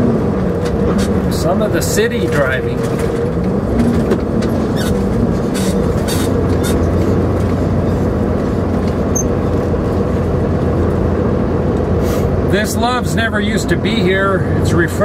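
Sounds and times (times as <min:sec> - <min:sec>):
truck engine and road hum: 0:00.0 - 0:15.0.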